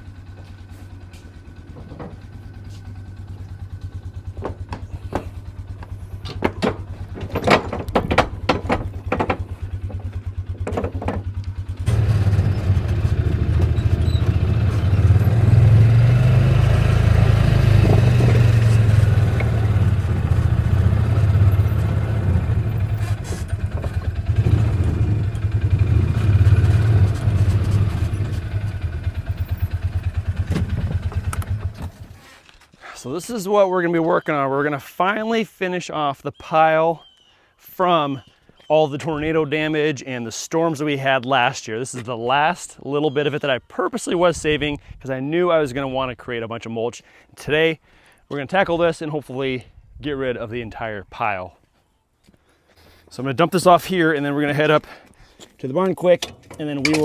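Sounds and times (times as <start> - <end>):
utility vehicle engine running: 0.0 - 32.4, 56.1 - 57.0
sharp clanks and knocks: 1.1 - 22.0, 22.7 - 32.2, 56.1 - 57.0.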